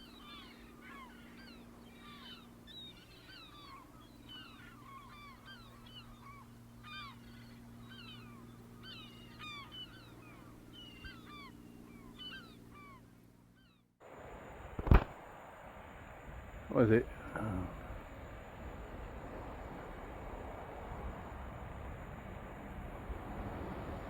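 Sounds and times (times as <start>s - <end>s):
birds chirping: 0.0s - 13.8s
steady low hum: 0.0s - 24.0s.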